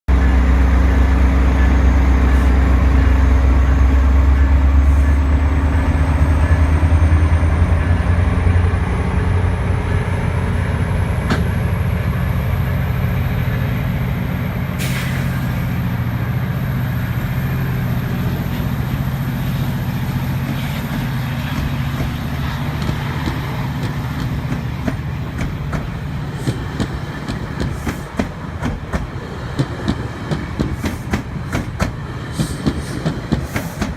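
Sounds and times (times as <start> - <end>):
diesel locomotive engine droning: 0.1 - 33.9
train wheels clicking over rail joints: 10.7 - 11.9, 18.4 - 33.9.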